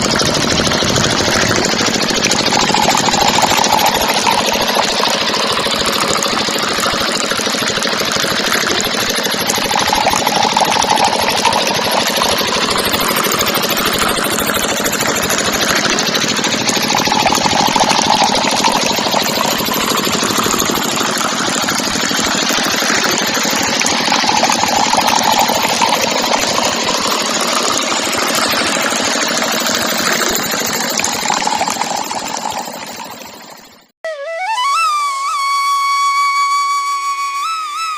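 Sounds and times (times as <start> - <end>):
small motor rattling: 0.0 - 33.9.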